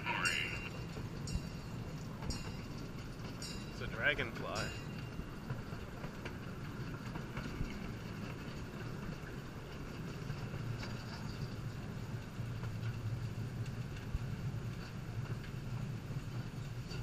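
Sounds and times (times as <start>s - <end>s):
train rolling along track: 0.0s - 17.0s.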